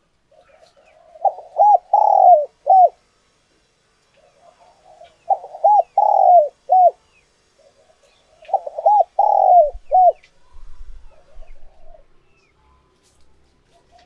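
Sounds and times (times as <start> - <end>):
dove cooing: 0.3 - 3.0, 4.2 - 7.0, 7.6 - 10.2, 11.0 - 12.2.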